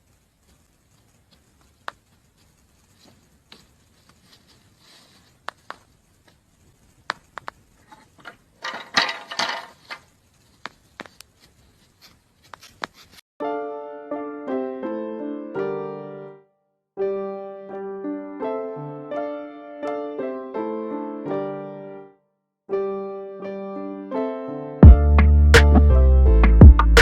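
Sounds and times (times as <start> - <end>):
rough scraping or rustling: 0.6 - 5.9, 7.8 - 13.2
piano music: 13.4 - 27.0.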